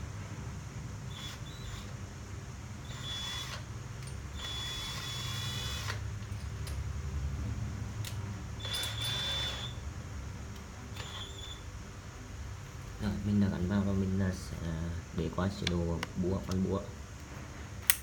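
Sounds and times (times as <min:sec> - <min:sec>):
cordless drill motor whine: 0:01.0 - 0:02.0, 0:02.8 - 0:06.0, 0:08.6 - 0:09.8, 0:10.9 - 0:11.7.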